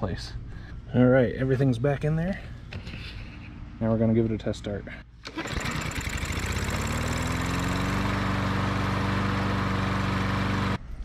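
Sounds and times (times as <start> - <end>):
lawn mower engine starting: 5.2 - 10.8.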